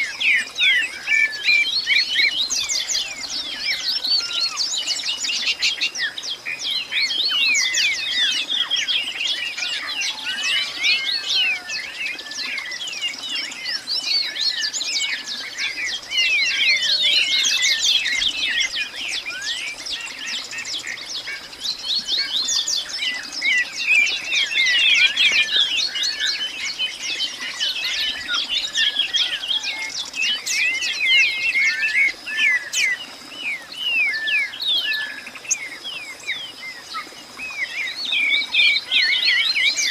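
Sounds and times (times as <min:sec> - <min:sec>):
birds chirping and calling: 0:00.0 - 0:39.9.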